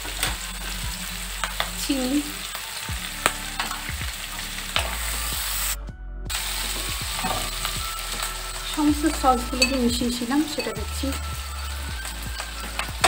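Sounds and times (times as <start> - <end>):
vegetables sizzling in a wok: 0.0 - 13.0
wooden spatula scraping a pan: 6.7 - 11.1.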